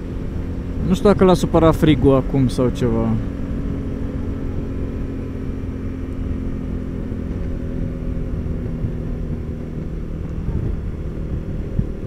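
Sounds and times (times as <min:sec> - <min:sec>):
motorcycle engine running: 0:00.0 - 0:12.0
wind and road rumble: 0:00.0 - 0:12.0.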